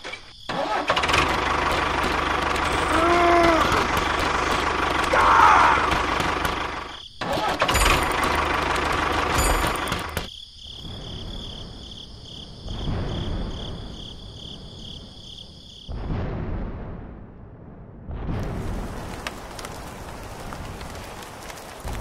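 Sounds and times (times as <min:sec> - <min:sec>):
model tractor engine running: 0:00.7 - 0:05.2, 0:05.8 - 0:06.9, 0:07.6 - 0:10.3.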